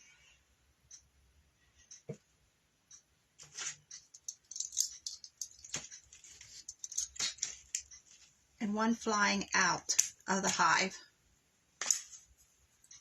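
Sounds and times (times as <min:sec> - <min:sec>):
rustling: 0:03.4 - 0:08.4
clicking of craft pieces: 0:04.0 - 0:08.0, 0:11.8 - 0:12.2.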